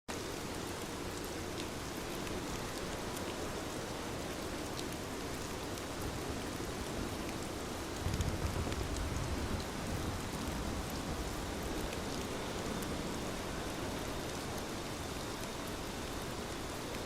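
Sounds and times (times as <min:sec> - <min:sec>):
rain on a window: 0:00.1 - 0:17.0.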